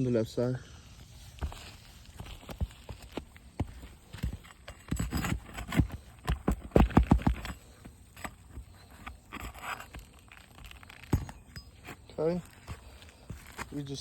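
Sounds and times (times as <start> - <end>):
knocks and taps on roof shingles: 2.2 - 9.2.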